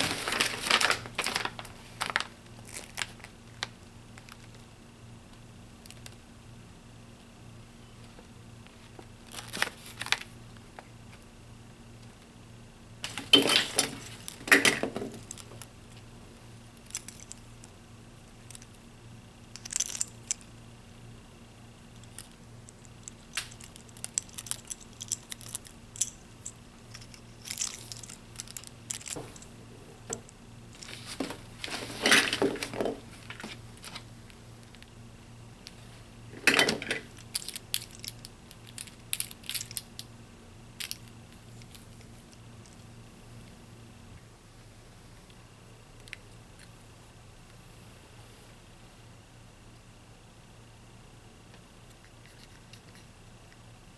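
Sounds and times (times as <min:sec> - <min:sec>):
plastic toys and packaging handled: 0:00.0 - 0:04.6, 0:08.7 - 0:11.2, 0:13.0 - 0:15.7, 0:22.0 - 0:35.0, 0:35.7 - 0:40.1
faint steady hum: 0:00.0 - 0:53.9.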